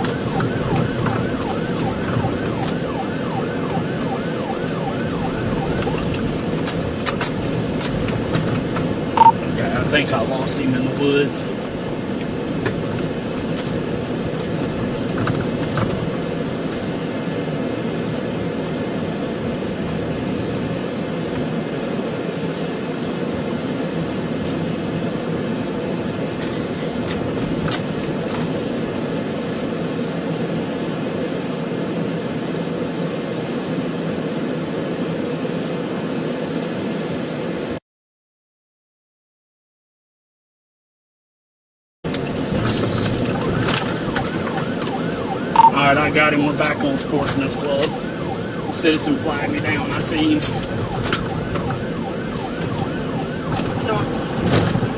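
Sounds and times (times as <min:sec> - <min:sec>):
car engine and road noise: 0:00.0 - 0:37.8, 0:42.0 - 0:54.9.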